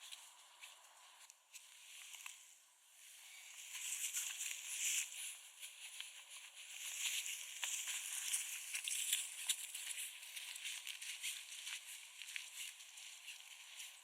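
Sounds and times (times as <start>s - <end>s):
footsteps crunching in snow: 3.6s - 14.0s.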